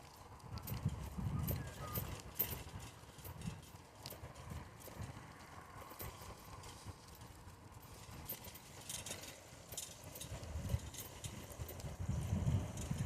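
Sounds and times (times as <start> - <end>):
wind rumble on microphone: 0.0 - 9.2, 9.8 - 13.0
bicycle clicks and rattles: 0.0 - 13.0.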